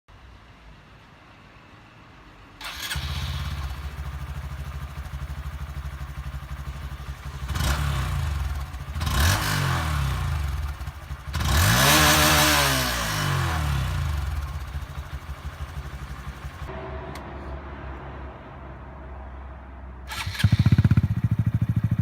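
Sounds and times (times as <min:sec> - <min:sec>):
motorcycle engine idling and revving: 0:02.6 - 0:17.4, 0:20.0 - 0:22.0.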